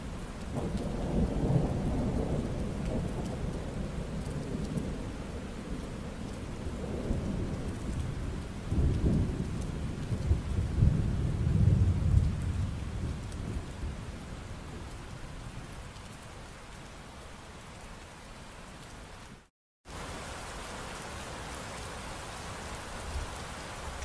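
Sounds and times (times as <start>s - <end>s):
steady rain: 0.0s - 24.0s
thunder rumbling: 0.4s - 15.7s.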